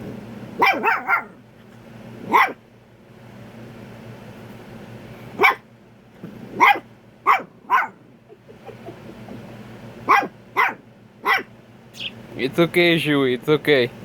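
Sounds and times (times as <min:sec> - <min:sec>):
puppy barking: 0:00.6 - 0:01.4, 0:02.2 - 0:02.6, 0:05.4 - 0:05.7, 0:06.5 - 0:08.1, 0:10.0 - 0:11.6.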